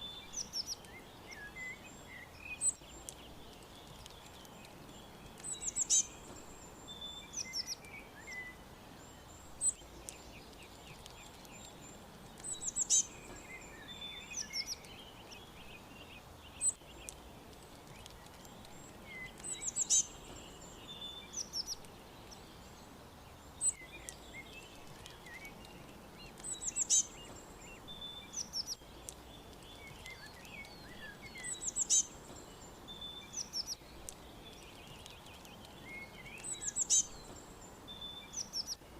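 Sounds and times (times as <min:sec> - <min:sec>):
outdoor background hiss: 0:00.0 - 0:38.9
songbirds chirping: 0:00.0 - 0:38.9.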